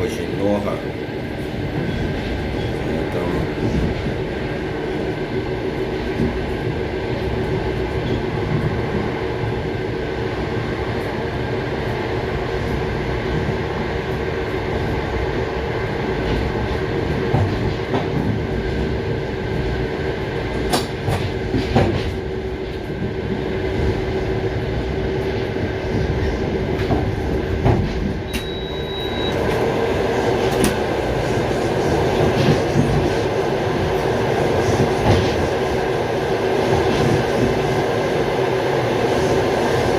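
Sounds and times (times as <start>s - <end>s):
train wheels rumbling on rails: 0.0s - 39.9s
clicks from rail joints: 20.5s - 22.2s.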